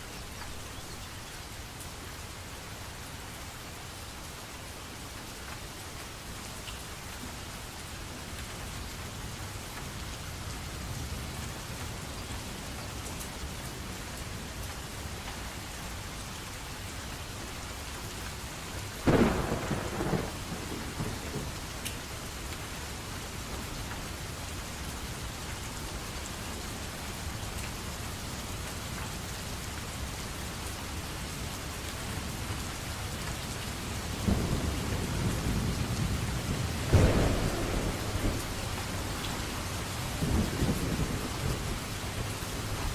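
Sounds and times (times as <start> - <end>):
steady rain: 0.0 - 42.9
thunder: 19.0 - 21.6, 34.2 - 39.4.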